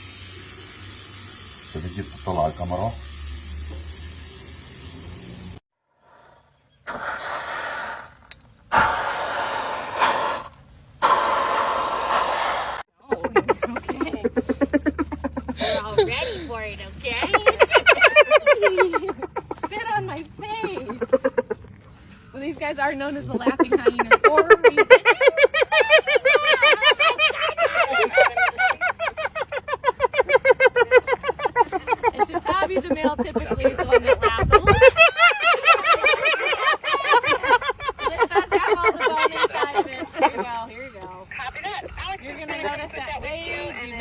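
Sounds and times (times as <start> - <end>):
hyenas laughing: 13.0 - 22.0, 23.0 - 40.6.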